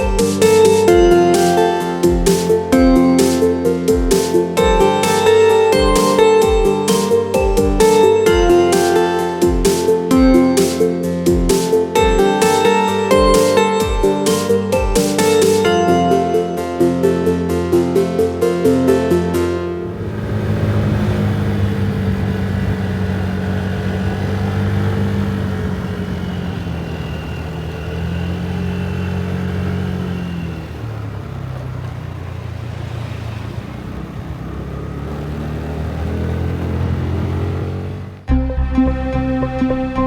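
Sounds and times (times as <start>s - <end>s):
motorcycle engine running: 0.0s - 10.6s, 19.8s - 38.5s
wind and road noise: 19.8s - 38.4s.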